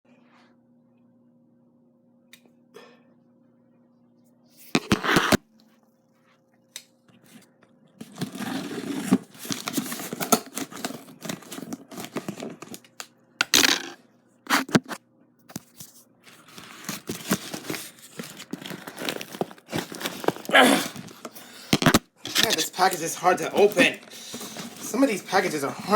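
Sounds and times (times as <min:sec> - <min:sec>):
packaging tearing and crinkling: 0:08.0 - 0:13.8, 0:15.6 - 0:25.9.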